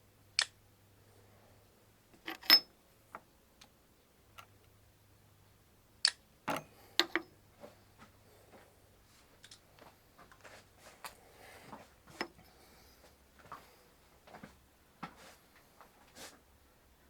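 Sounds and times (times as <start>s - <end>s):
light clicks of metal parts: 6.0s - 7.3s, 9.4s - 12.5s.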